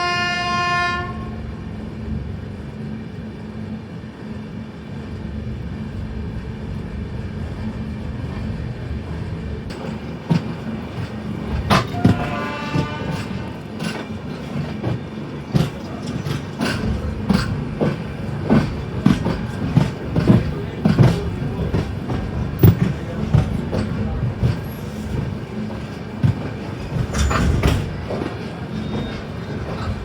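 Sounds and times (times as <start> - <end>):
train rumble: 0.0 - 30.0
train wheels knocking over rail joints: 9.7 - 30.0
distant horn tone: 11.9 - 13.4.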